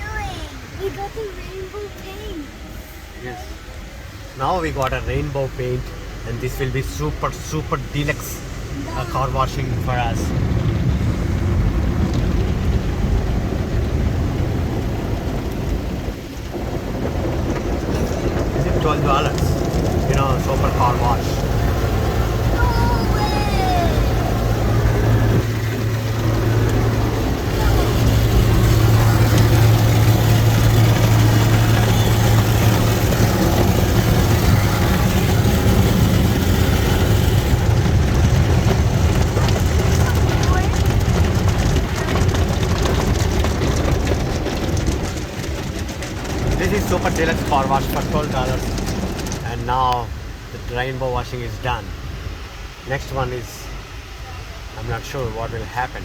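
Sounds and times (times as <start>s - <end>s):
car wash spray and machinery: 0.0s - 56.0s
rushing noise: 0.0s - 56.0s.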